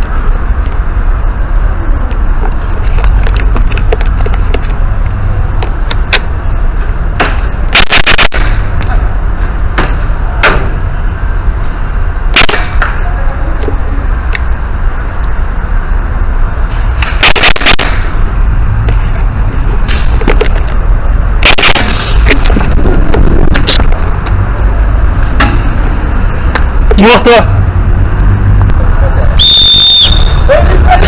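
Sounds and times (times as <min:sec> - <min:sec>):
steady low rumble: 0:00.0 - 0:29.6
airsoft gun shots: 0:07.2 - 0:08.8, 0:12.4 - 0:13.0, 0:17.0 - 0:18.2, 0:21.4 - 0:22.4.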